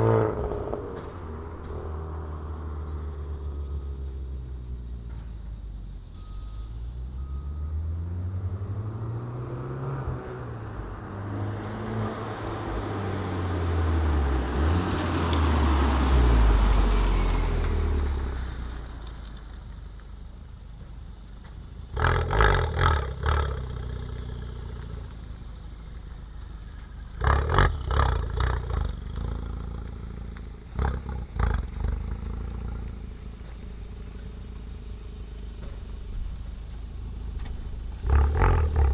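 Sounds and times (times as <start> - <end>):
car accelerating past: 0.0 - 4.6, 7.1 - 19.5
exhaust popping and crackling: 14.2 - 38.9.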